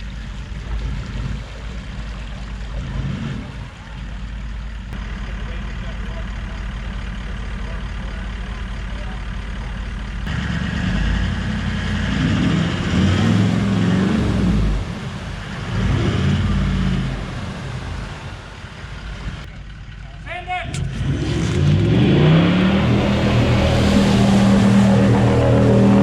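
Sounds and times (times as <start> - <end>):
engine running and revving: 0.0 - 19.6, 20.7 - 26.0.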